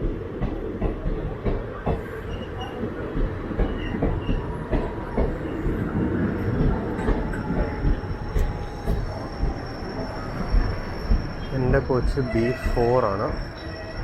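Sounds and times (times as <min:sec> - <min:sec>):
train wheels rumbling: 0:00.0 - 0:14.0
faint squeaks: 0:06.9 - 0:14.0.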